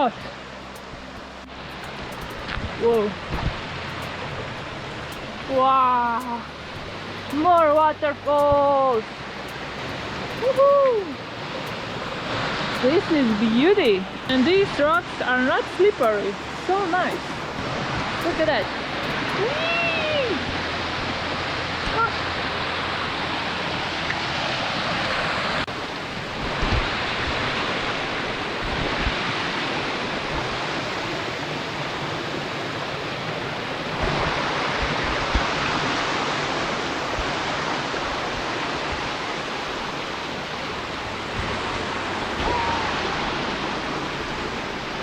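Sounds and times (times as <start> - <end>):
low bumps: 0.0 - 19.6
waterfall rushing over rocks: 0.0 - 45.0.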